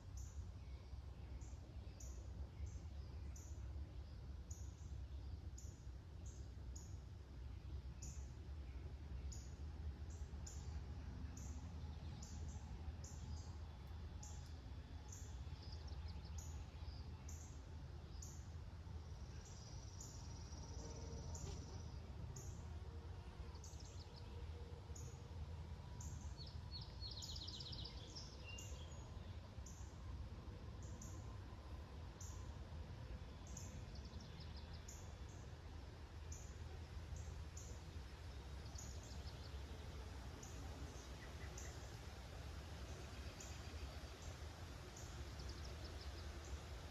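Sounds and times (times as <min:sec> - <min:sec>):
low outdoor rumble: 0:00.0 - 0:46.9
songbird calls and trill: 0:26.0 - 0:30.0, 0:33.2 - 0:35.5, 0:36.2 - 0:39.8, 0:40.4 - 0:42.1, 0:42.8 - 0:46.7.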